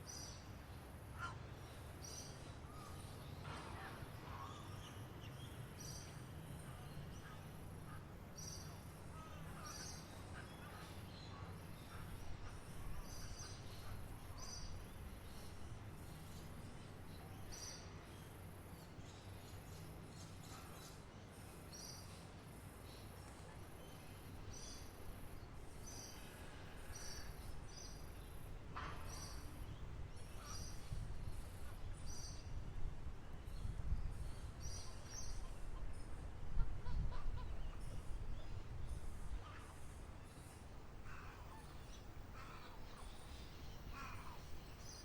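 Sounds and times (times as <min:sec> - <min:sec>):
small birds chirping: 0:33.6 - 0:45.0.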